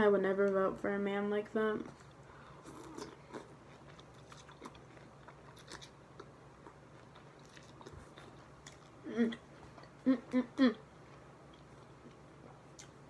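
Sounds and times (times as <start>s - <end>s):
person chewing food: 2.0s - 10.4s, 11.1s - 13.0s.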